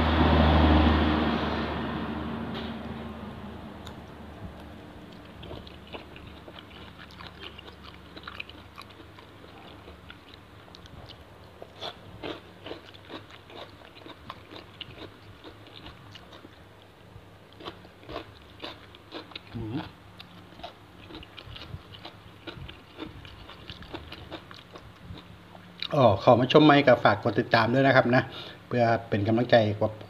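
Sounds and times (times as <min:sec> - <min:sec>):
person chewing wet crunchy food: 0:03.8 - 0:26.0.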